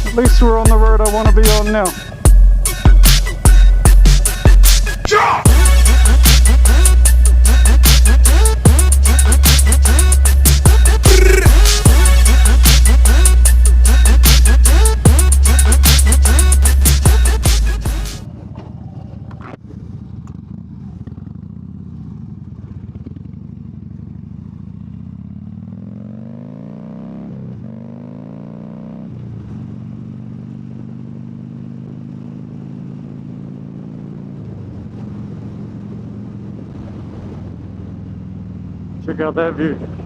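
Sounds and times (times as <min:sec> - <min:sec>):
music: 0:00.0 - 0:18.2
motorcycle engine: 0:00.0 - 0:40.0.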